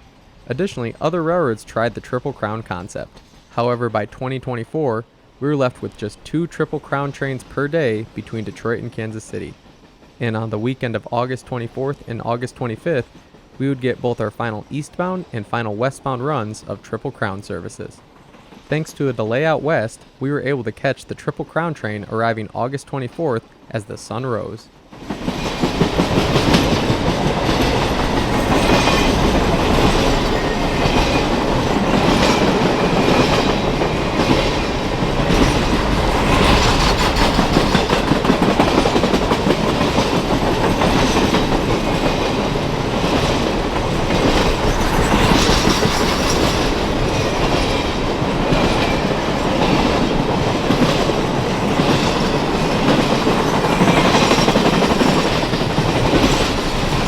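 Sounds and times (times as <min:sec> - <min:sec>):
train rumble: 0:05.2 - 0:57.0
train wheels clicking over rail joints: 0:05.6 - 0:22.4, 0:24.3 - 0:57.0.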